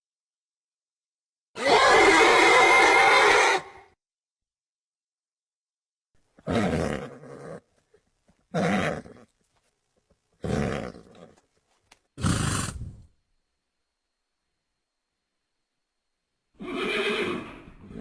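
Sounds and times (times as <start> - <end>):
creature growls: 12.2 - 13.1.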